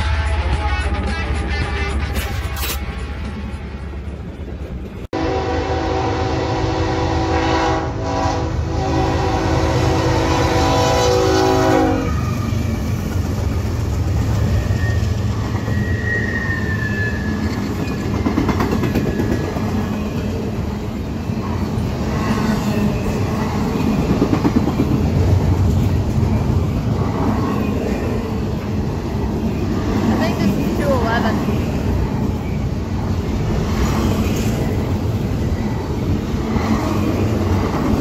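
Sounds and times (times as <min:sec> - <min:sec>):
freight train rumbling on rails: 0:00.0 - 0:38.0
locomotive horn chord: 0:05.1 - 0:12.1.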